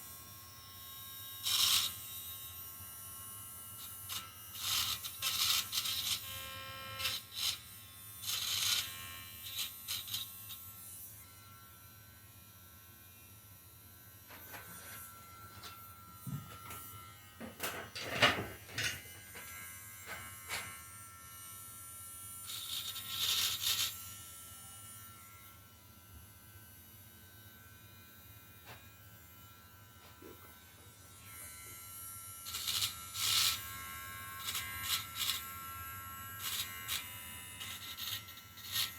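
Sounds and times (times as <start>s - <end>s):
rotary tool grinding metal: 1.4s - 2.3s, 3.8s - 25.5s, 28.6s - 38.9s
rotary tool whining: 22.5s - 24.0s, 32.4s - 38.9s.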